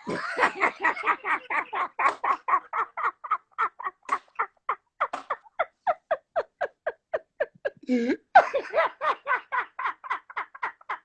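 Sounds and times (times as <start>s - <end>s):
person laughing heartily: 0.0s - 11.0s.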